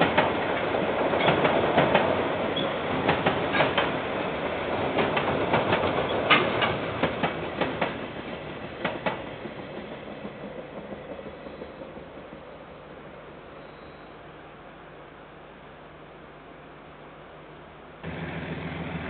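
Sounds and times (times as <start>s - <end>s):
freight train wagons rolling past: 0.0s - 14.7s
wheels clicking over rail joints: 5.0s - 8.0s.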